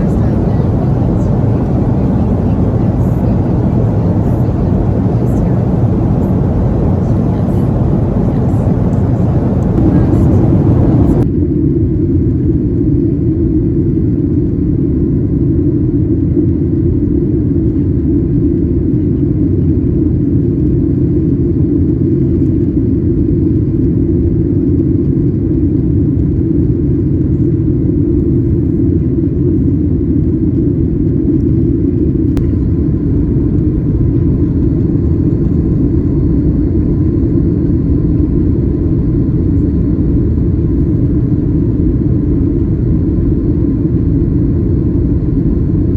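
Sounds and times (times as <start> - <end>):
jet engine drone in cabin: 0.0 - 11.2, 26.5 - 45.9.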